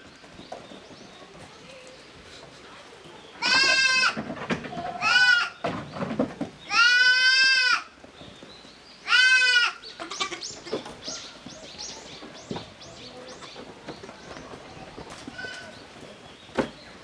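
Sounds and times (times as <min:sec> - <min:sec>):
goat bleating: 0:03.4 - 0:04.2, 0:04.8 - 0:05.6, 0:06.7 - 0:07.9, 0:09.0 - 0:10.8.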